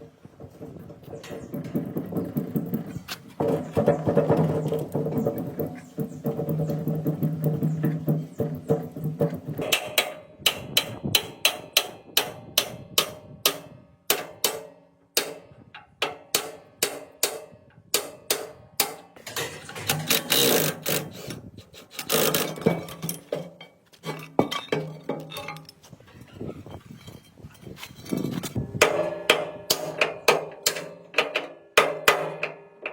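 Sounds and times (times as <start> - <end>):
irregular knocking and clinking: 0.0 - 10.2, 19.2 - 21.1, 22.0 - 25.9.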